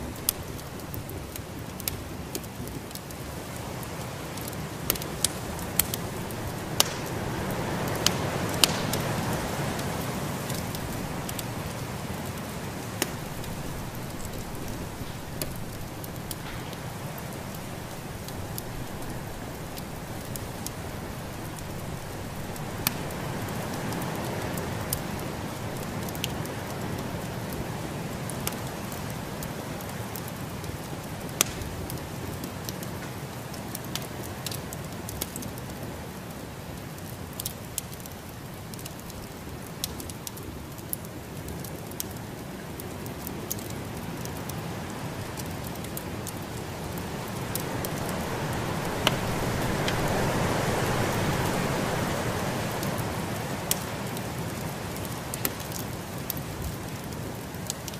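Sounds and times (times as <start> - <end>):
wood fire crackling and popping: 0.0 - 57.9
snowstorm rushing noise: 46.6 - 53.7.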